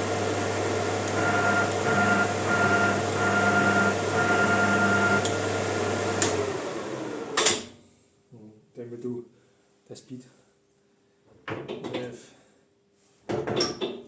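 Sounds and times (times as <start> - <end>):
lathe motor humming with whine: 0.0 - 7.4.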